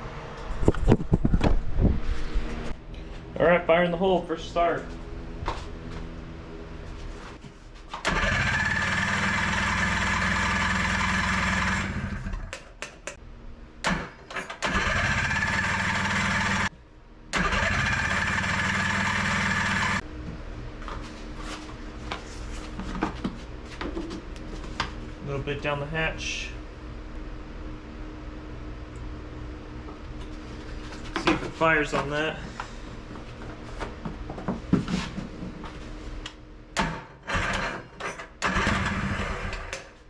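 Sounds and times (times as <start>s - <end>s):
engine cranking: 8.0s - 12.5s, 13.9s - 16.7s, 17.4s - 20.0s, 37.3s - 39.9s.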